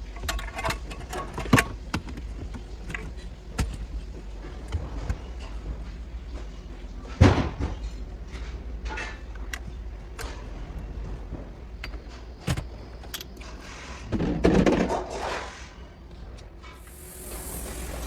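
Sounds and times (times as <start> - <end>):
car parts clunking and clicking: 0.0 - 5.9, 7.1 - 15.2.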